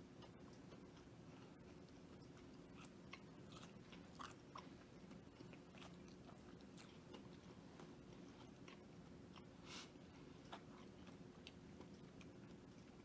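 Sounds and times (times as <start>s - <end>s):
faint steady hum: 0.0s - 13.0s
person chewing crunchy food: 0.2s - 13.0s.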